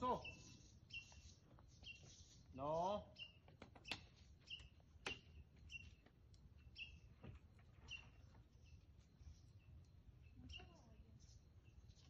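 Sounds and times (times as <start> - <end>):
faint bird chirps: 0.0 - 4.8, 7.8 - 12.0.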